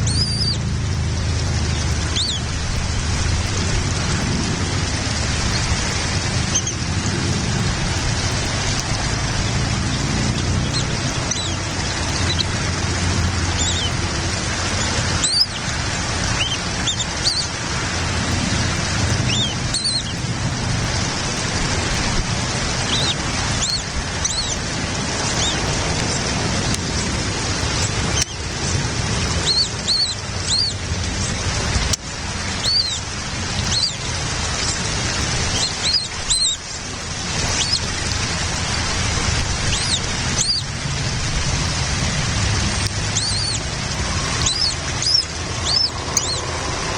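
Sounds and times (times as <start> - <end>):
high-pitched bird chirps: 0.0 - 0.6, 1.8 - 2.5, 6.4 - 6.8, 9.9 - 12.6, 13.4 - 14.0, 14.8 - 15.7, 16.3 - 17.5, 19.2 - 20.2, 22.8 - 24.6, 25.3 - 25.7, 28.2 - 28.4, 29.4 - 30.8, 32.6 - 33.0, 33.6 - 34.0, 35.5 - 36.6, 37.5 - 37.9, 39.7 - 40.7, 43.1 - 43.7, 44.3 - 46.5
rain hissing: 0.0 - 46.9.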